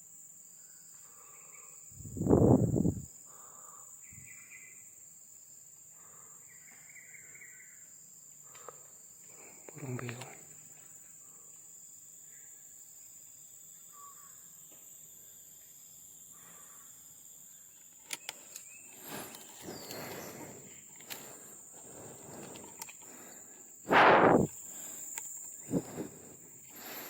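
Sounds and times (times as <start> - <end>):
insects droning: 0.0 - 27.0
faint short calls: 23.9 - 27.0.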